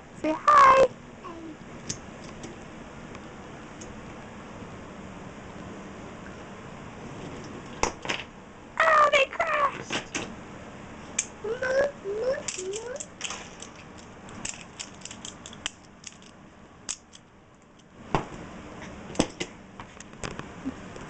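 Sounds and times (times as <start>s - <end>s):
small child vocalizing: 0.5s - 1.6s, 11.4s - 13.1s
toy train pieces clicking and knocking: 12.3s - 17.8s.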